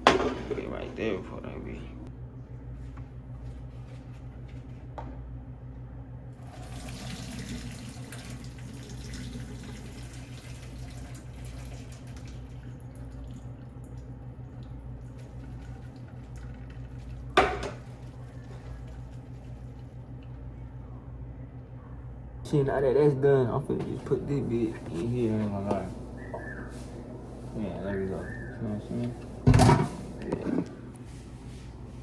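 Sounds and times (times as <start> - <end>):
low electrical hum: 0.0 - 32.0
water pouring: 6.4 - 20.0.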